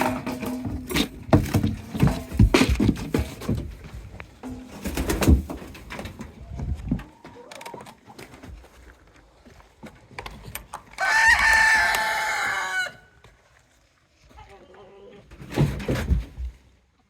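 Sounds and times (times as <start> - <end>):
knocks and handling noises: 0.0 - 8.5
rooster crowing: 11.0 - 13.2.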